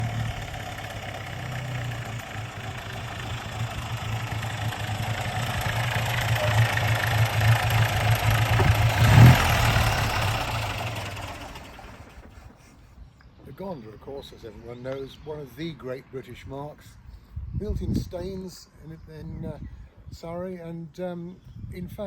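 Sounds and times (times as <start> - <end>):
car engine running: 0.0 - 12.5.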